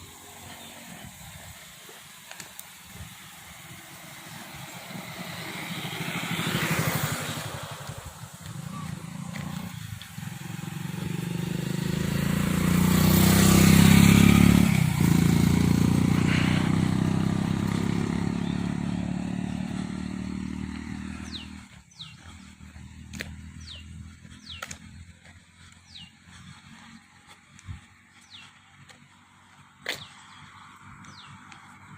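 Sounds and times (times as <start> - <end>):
motor vehicle passing by: 0.0 - 31.9
bird chirps: 20.9 - 25.1, 25.7 - 26.5.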